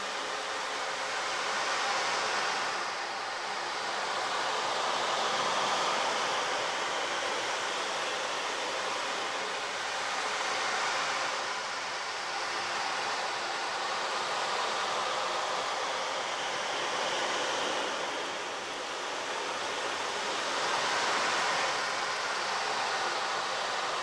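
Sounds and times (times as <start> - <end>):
steady rushing noise: 0.0 - 24.0.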